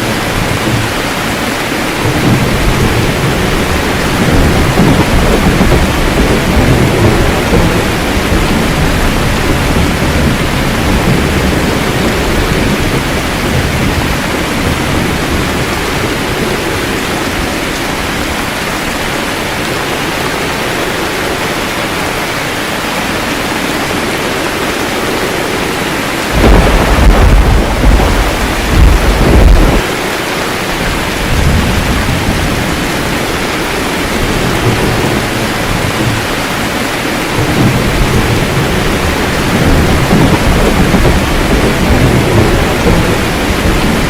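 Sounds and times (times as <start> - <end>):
steady rain: 0.0 - 44.0
thunder rumbling: 0.0 - 44.0
loud peal of thunder: 1.9 - 17.1, 26.2 - 30.1, 31.0 - 44.0.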